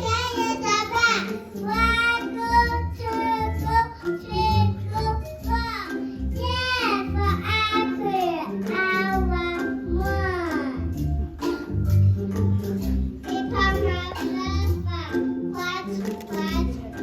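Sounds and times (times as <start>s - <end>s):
children singing: 0.0s - 11.7s
instrumental backing music: 0.0s - 17.0s.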